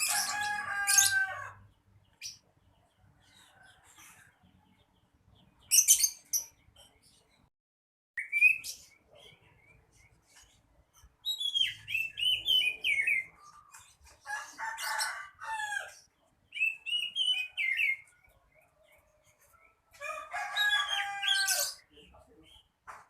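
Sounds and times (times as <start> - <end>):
bird singing whistled phrases: 8.2 - 8.8, 11.3 - 13.3.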